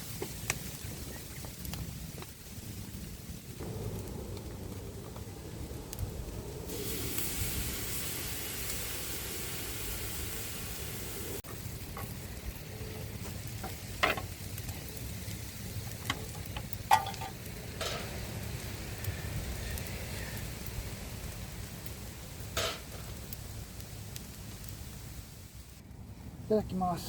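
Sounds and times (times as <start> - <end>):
food sizzling in a pan: 6.7 - 25.8
cooking utensils clinking: 16.9 - 18.2.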